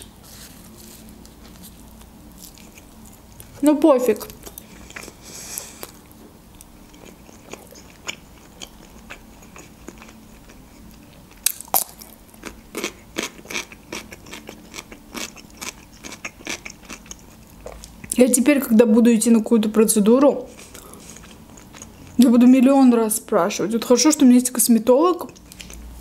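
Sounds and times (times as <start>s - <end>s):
soft chewing: 0.2s - 3.6s, 4.2s - 18.2s, 20.5s - 22.2s, 25.2s - 26.0s
crunchy chewing: 0.3s - 3.6s, 4.2s - 18.2s, 20.5s - 22.2s, 25.2s - 25.9s.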